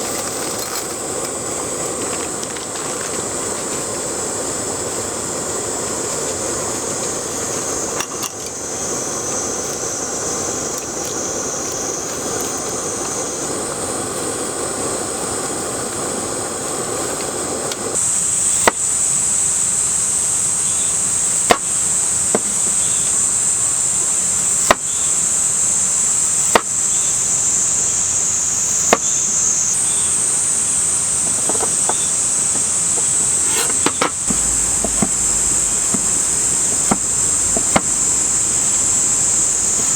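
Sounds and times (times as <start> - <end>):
cicadas buzzing: 0.0 - 39.9
sharp knocks: 33.4 - 39.3
low rushing noise: 33.4 - 39.9.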